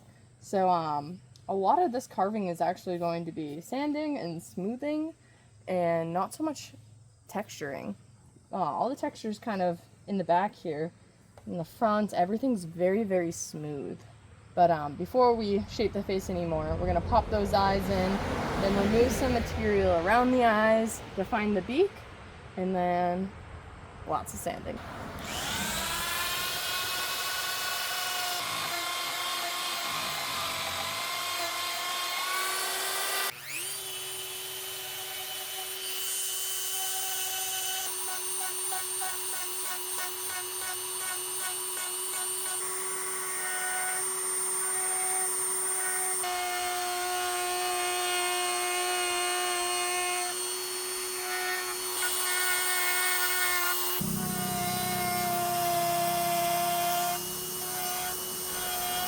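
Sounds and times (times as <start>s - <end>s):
rotary carving tool whining on wood: 17.9s - 21.5s, 24.8s - 59.0s.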